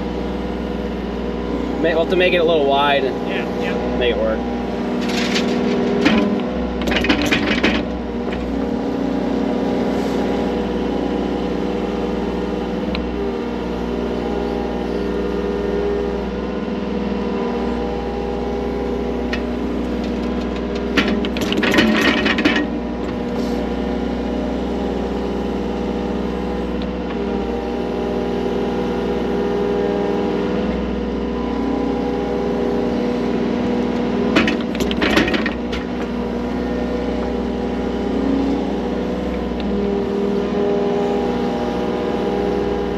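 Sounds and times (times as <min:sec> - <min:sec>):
digging machine engine running: 0:00.0 - 0:42.9
scraping and clanking: 0:04.9 - 0:08.5, 0:19.3 - 0:23.6.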